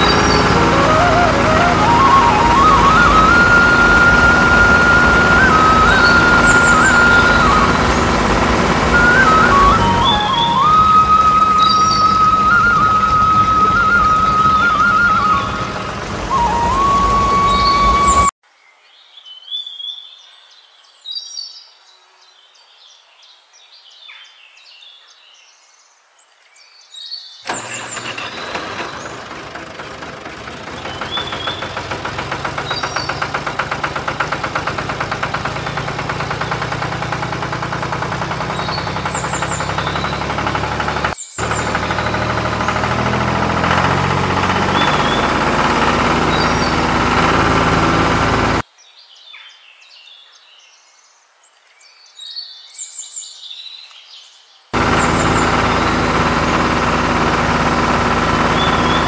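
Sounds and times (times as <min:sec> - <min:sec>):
birds chirping: 0:00.0 - 0:18.3, 0:27.1 - 0:48.6, 0:54.8 - 0:59.0
diesel tractor engine running: 0:00.0 - 0:18.3, 0:27.5 - 0:48.6, 0:54.8 - 0:59.0.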